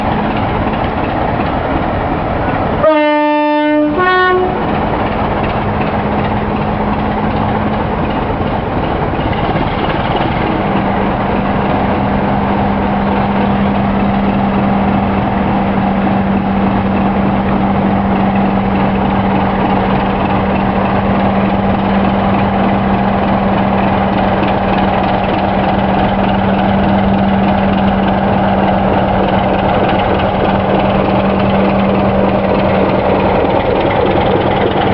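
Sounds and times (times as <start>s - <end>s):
diesel locomotive engine running: 0.0s - 34.9s
two-tone locomotive horn: 2.8s - 4.7s.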